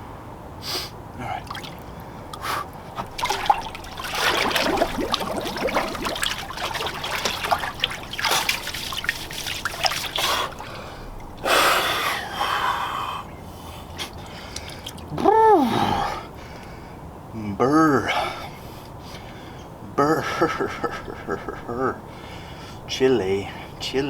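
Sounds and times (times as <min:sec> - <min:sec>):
water sloshing and trickling: 0:01.3 - 0:12.3, 0:13.3 - 0:15.2.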